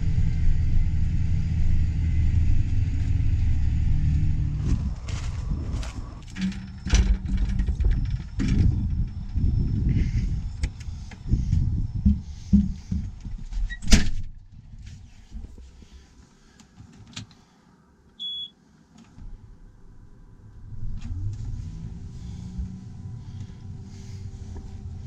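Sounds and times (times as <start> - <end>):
low rumbling and knocking: 0.0 - 14.8, 20.5 - 25.0
faint steady hum: 14.4 - 25.0
short electronic beep: 18.2 - 18.6.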